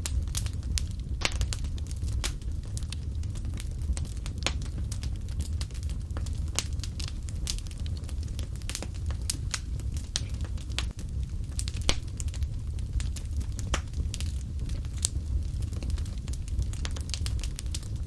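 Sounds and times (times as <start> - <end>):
fire crackling and popping: 0.0 - 18.0
low rumble of fire: 0.0 - 18.0.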